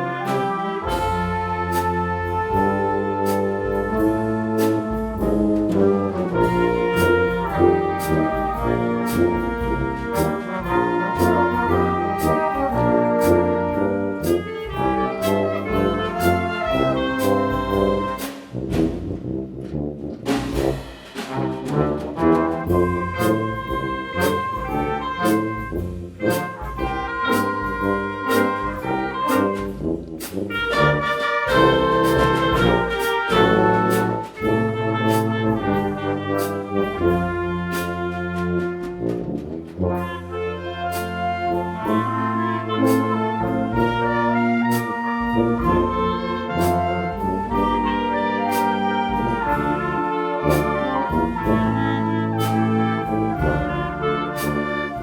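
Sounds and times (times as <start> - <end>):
percussion hits: 0.0 - 49.8
bass line: 0.0 - 55.0
brass chords: 0.0 - 55.0
sharp percussive hits: 18.0 - 19.2.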